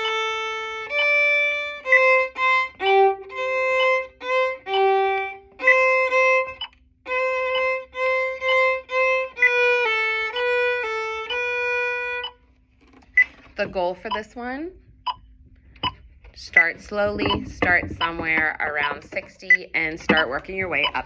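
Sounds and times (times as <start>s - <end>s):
solo violin bowing: 0.0s - 12.4s.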